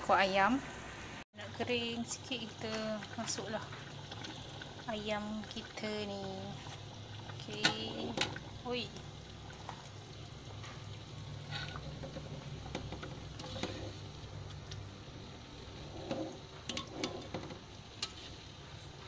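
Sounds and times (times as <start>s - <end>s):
food sizzling and bubbling: 0.0s - 19.0s
spatula scraping a wok: 13.1s - 14.2s, 15.6s - 18.5s.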